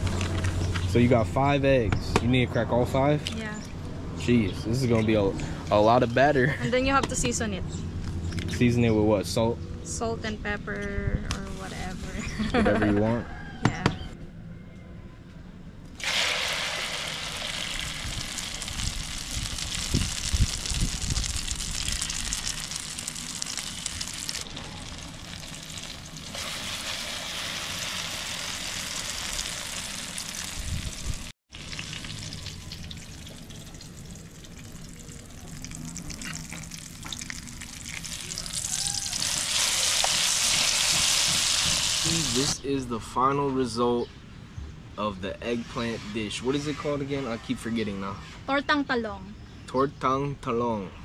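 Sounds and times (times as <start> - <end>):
eggplant frying in hot oil: 16.0 - 42.6.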